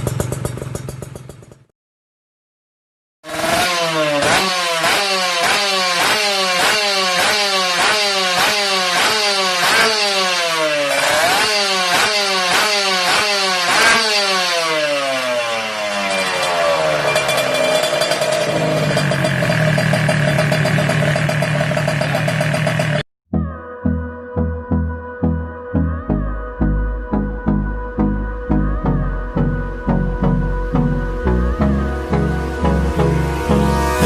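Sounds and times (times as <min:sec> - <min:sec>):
two-stroke motorcycle engine revving: 0:00.0 - 0:01.7, 0:03.2 - 0:23.1, 0:31.5 - 0:34.0.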